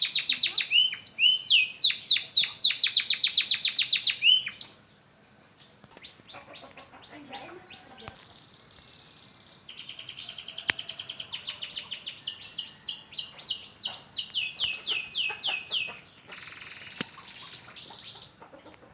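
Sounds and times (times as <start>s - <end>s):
canary singing: 0.0s - 4.8s, 5.6s - 18.8s.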